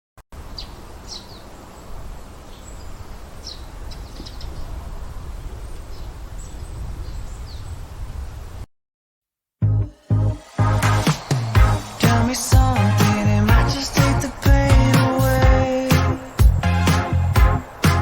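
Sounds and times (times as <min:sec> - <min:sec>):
small birds chirping: 0:00.6 - 0:04.8
low outdoor rumble: 0:09.8 - 0:17.8.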